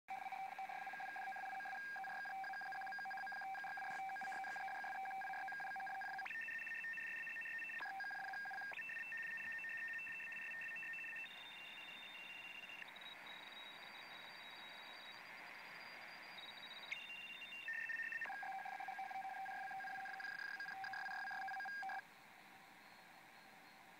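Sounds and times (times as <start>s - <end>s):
data transmission beeping tones: 0.1s - 22.0s
radio hiss: 3.4s - 5.3s.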